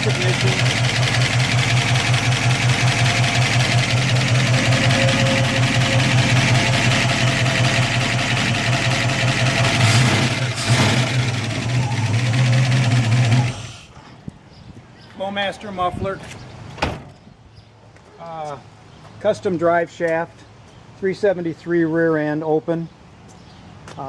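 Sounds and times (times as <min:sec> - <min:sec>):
car engine idling: 0:00.0 - 0:13.9.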